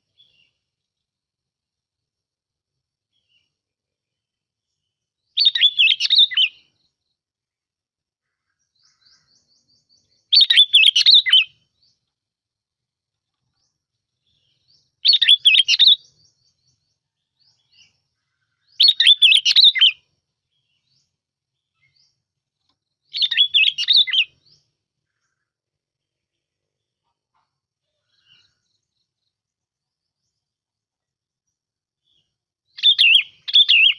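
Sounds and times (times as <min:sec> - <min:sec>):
bulbul singing bubbling song: 0:04.6 - 0:07.1, 0:08.6 - 0:12.1, 0:13.6 - 0:25.4, 0:31.5 - 0:33.9.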